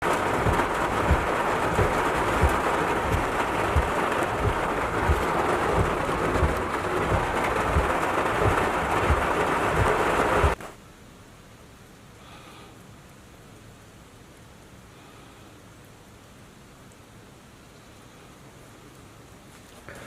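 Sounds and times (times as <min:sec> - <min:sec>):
low thumps: 0:00.0 - 0:10.6
wind and rain rushing: 0:00.0 - 0:12.0.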